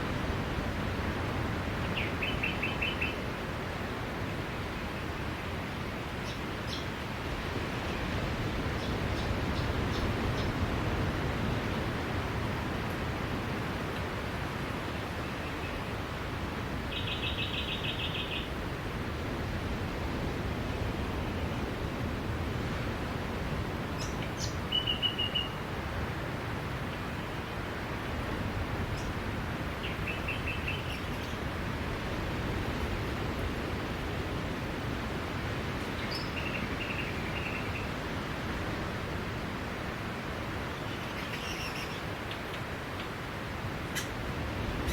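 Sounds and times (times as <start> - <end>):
small birds chirping: 36.0 - 37.9.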